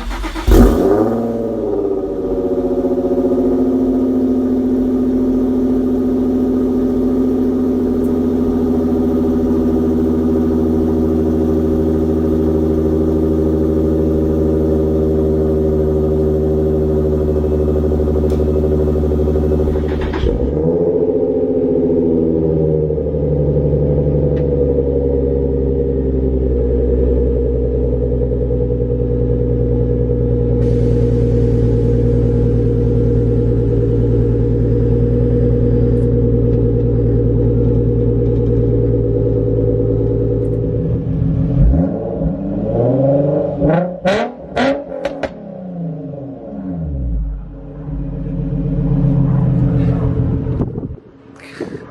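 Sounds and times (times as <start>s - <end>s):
exhaust cracks: 0.0s - 21.8s, 30.4s - 42.6s, 46.4s - 51.9s
engine revving: 0.0s - 28.0s, 30.6s - 51.9s
car engine fast-idling: 0.0s - 41.8s, 46.8s - 51.9s.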